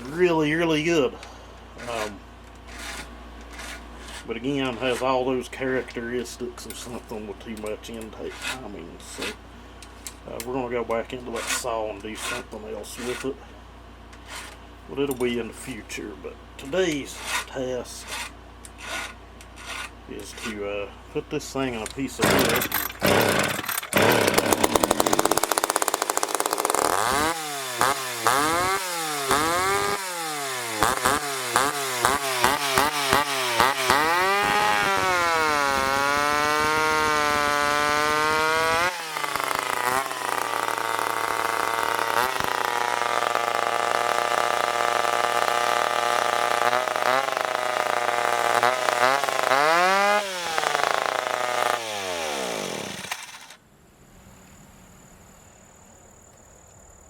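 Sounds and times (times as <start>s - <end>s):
two-stroke chainsaw revving: 22.2s - 53.6s.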